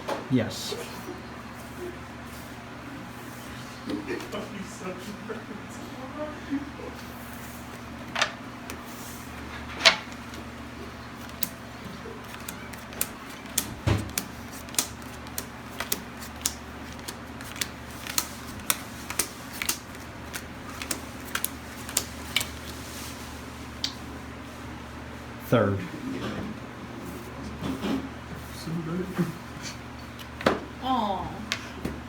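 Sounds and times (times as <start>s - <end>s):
playing cards tapping onto table: 12.2s - 22.6s.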